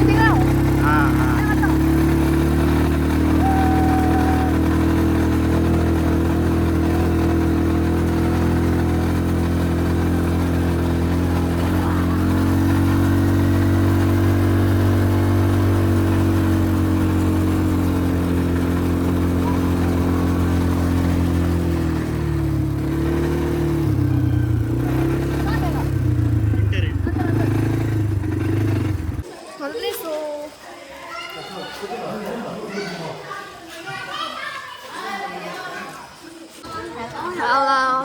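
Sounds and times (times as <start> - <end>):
vehicle engine running: 0.0 - 29.3.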